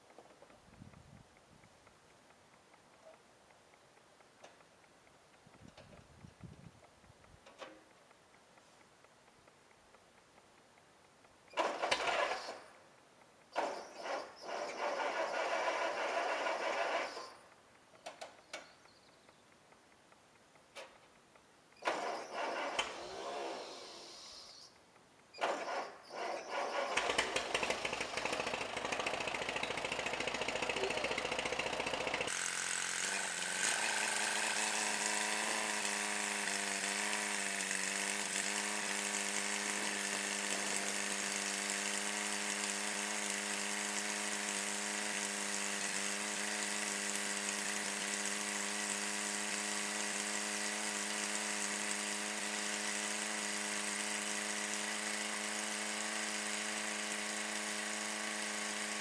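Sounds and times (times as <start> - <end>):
tractor starter cranking: 11.5 - 12.8, 13.5 - 17.5, 21.8 - 24.1, 25.3 - 59.0
tractor engine running: 13.6 - 17.3, 26.5 - 59.0.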